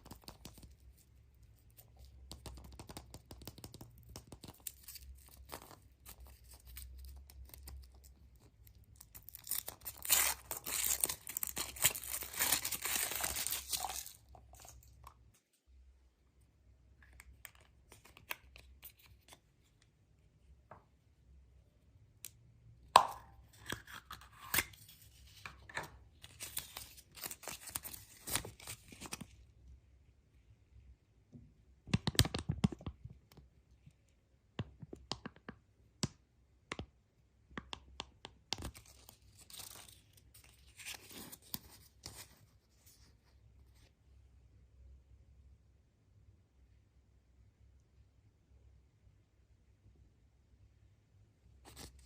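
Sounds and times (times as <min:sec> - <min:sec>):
clicks and taps: 0:02.0 - 0:04.7, 0:34.6 - 0:38.7
wrappers tearing and crinkling: 0:09.3 - 0:14.2.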